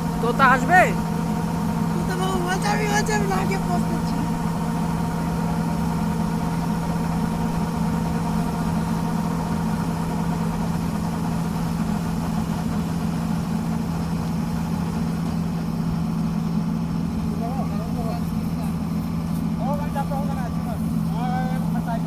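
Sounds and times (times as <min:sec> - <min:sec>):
tractor diesel engine droning: 0:00.0 - 0:22.0.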